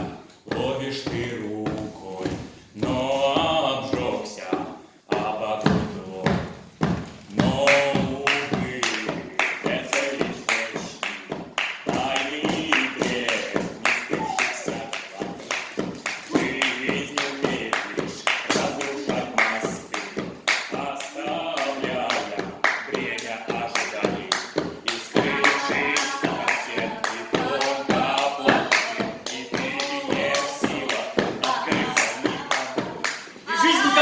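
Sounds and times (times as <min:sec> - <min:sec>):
voices singing a cappella: 0:00.0 - 0:06.6, 0:07.2 - 0:34.0
sharp hand claps: 0:07.6 - 0:34.0.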